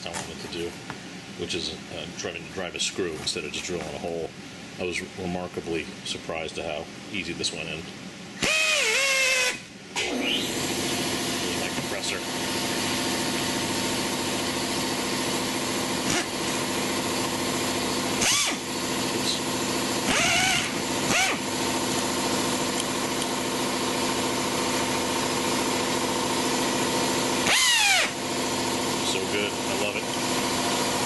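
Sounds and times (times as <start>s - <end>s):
air hum and hiss: 0.0s - 31.0s
air drill whining: 8.4s - 31.0s.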